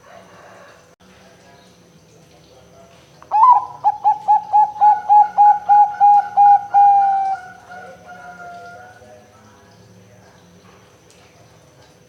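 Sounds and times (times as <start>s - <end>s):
dove cooing: 3.3s - 9.0s.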